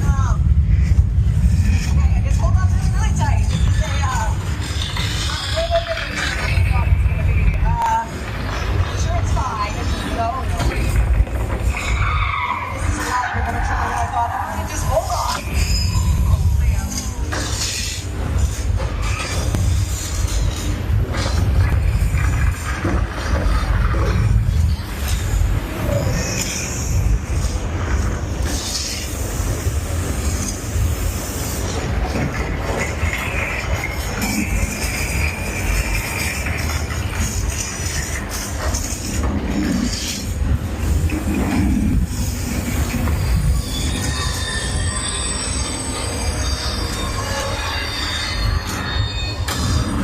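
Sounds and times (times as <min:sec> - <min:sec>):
tram rumbling and rolling: 0:00.0 - 0:50.0
high metallic squealing: 0:11.6 - 0:20.8, 0:42.1 - 0:50.0.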